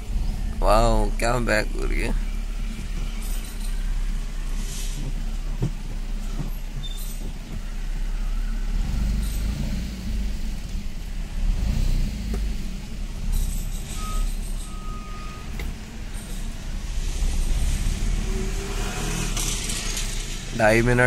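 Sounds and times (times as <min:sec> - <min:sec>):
car engine running at low revs: 0:00.0 - 0:21.0
faint high beeps: 0:14.0 - 0:15.5.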